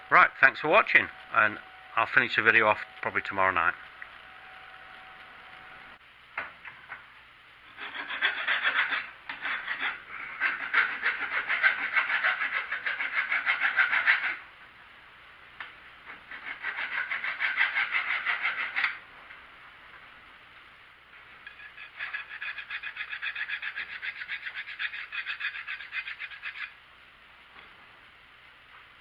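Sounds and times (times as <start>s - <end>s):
hand file rasping over steel: 7.7s - 14.4s, 16.3s - 19.0s, 21.4s - 26.7s.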